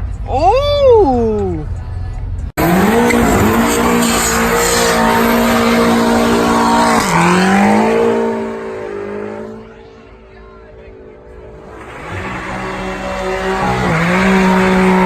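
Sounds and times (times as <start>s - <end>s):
car engine revving high: 2.6s - 10.0s, 11.4s - 15.0s.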